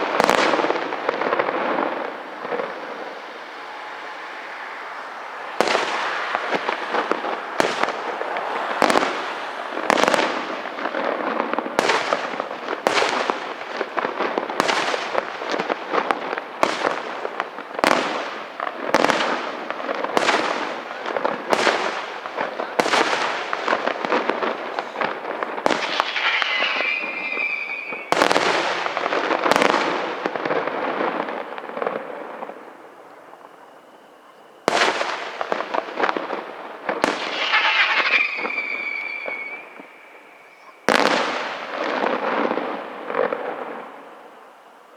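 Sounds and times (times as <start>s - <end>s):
firework whistling: 0.0s - 44.9s
fireworks crackling: 0.0s - 44.9s
firework shell bursts: 24.8s - 28.9s, 36.9s - 41.7s.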